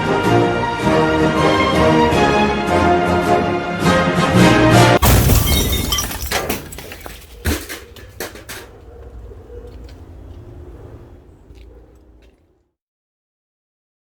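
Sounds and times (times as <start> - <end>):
music: 0.0 - 5.0
glass breaking crash: 5.0 - 8.8
glass shards clinking: 5.0 - 9.5.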